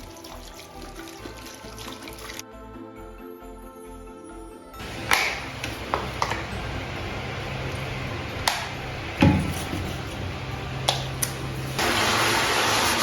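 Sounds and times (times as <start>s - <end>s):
low hum: 4.8s - 11.8s
running water hissing: 4.8s - 13.0s.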